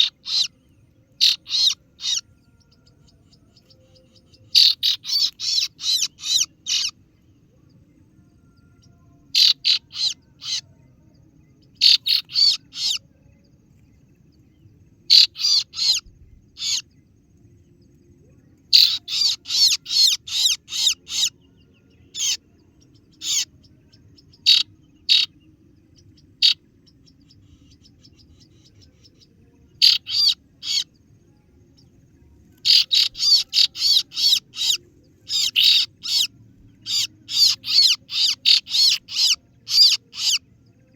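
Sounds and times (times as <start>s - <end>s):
shrill bird lure call: 0.0s - 7.0s, 8.8s - 10.6s, 11.8s - 13.0s, 15.1s - 16.9s, 18.7s - 23.6s, 24.2s - 25.3s, 26.4s - 31.0s, 32.6s - 40.9s
faint low hum: 0.0s - 40.9s.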